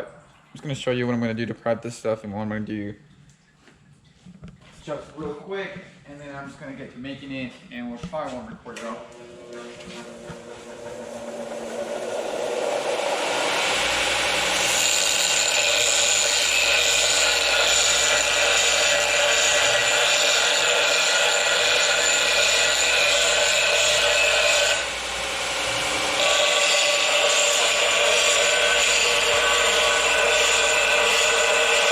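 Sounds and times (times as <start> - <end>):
power tool whining on steel pipe: 9.1 - 31.9.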